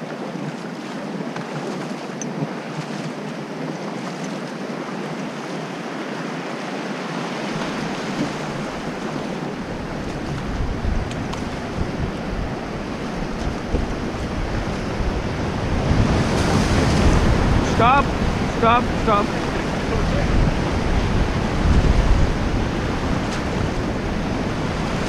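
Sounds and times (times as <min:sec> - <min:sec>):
river rapids rushing: 0:00.0 - 0:25.0
wind buffeting microphone: 0:07.1 - 0:25.0.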